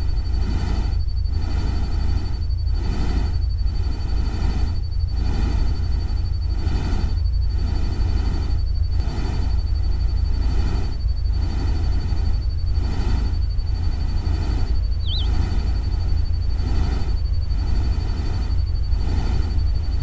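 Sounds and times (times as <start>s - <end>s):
deep rumble: 13.5s - 20.0s
bird chirp: 14.9s - 15.6s
thin high tone: 15.0s - 15.3s.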